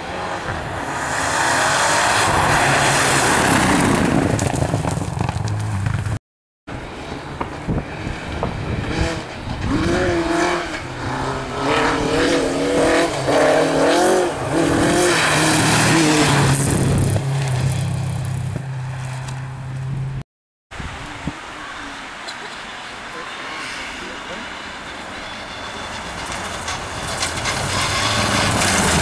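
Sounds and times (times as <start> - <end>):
rally car engine revving: 0.0 - 6.1, 7.6 - 19.2
tyre and surface noise: 0.3 - 6.2, 25.8 - 29.0.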